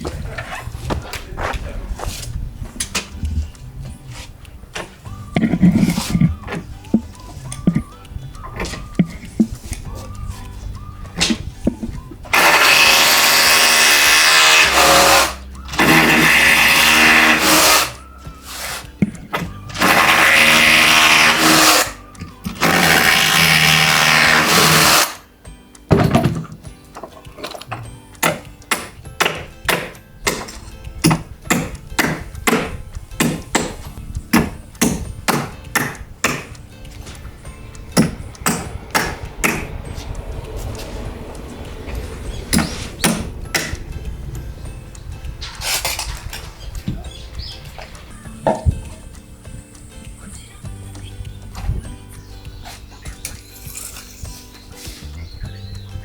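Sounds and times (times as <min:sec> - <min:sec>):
background music: 0:00.0 - 0:56.0
handheld power tool running: 0:12.3 - 0:18.0, 0:19.8 - 0:25.2
sharp knocking: 0:28.2 - 0:36.6, 0:38.0 - 0:39.8, 0:42.5 - 0:43.8.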